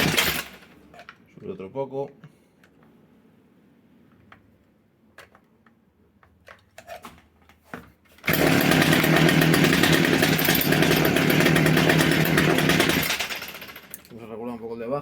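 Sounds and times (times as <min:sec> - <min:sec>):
trimmer engine running: 0:00.0 - 0:00.6, 0:08.2 - 0:13.9.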